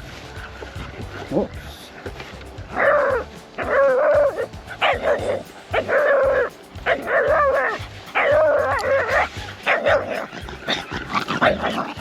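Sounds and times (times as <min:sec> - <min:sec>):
dog barking: 0:02.7 - 0:12.0.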